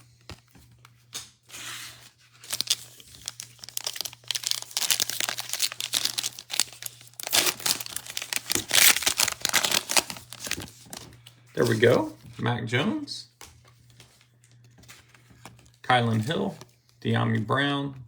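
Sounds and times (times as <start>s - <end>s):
plastic wrapper tearing and crinkling: 2.3s - 11.1s.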